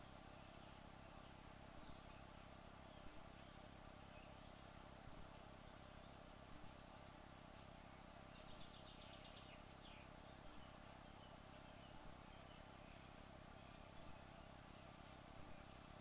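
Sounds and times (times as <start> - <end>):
faint chirping: 7.6 - 16.0.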